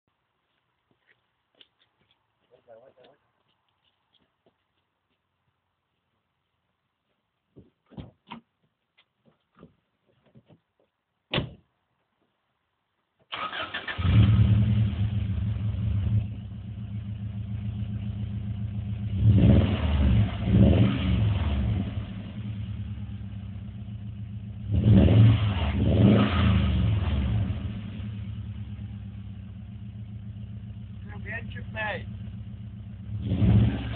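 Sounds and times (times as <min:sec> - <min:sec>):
car door thumping shut: 0:11.3 - 0:11.6
car engine starting and idling: 0:13.3 - 0:33.9
engine revving: 0:13.4 - 0:33.9.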